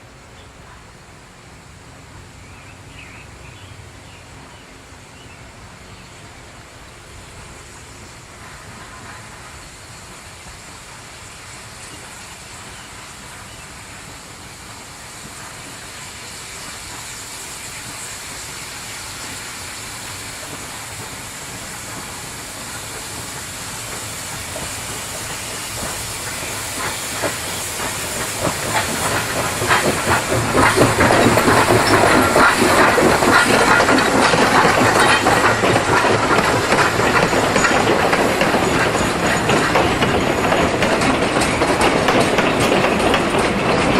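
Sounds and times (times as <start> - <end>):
train wheels clicking on rails: 2.5 - 43.9
steam hissing: 5.5 - 43.9.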